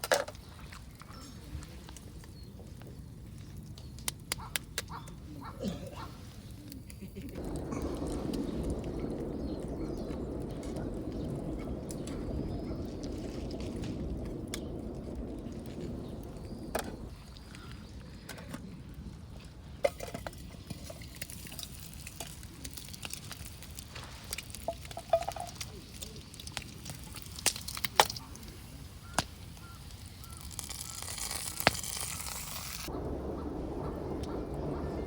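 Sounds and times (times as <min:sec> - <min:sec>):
low steady background: 0:00.2 - 0:20.3.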